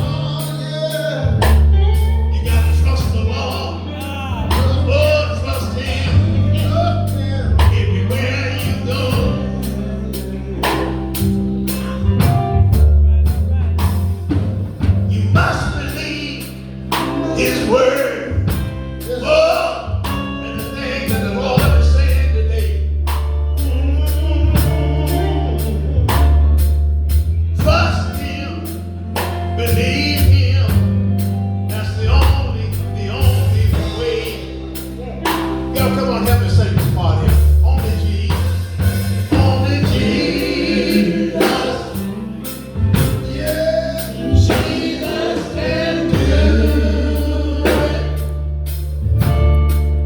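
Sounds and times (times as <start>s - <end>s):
people singing: 0.0s - 12.2s, 15.1s - 22.8s, 23.6s - 26.4s, 37.8s - 48.8s
bass notes: 0.0s - 50.0s
drum kit beat: 0.0s - 50.0s
guitar: 0.0s - 50.0s
keyboard: 0.0s - 50.0s.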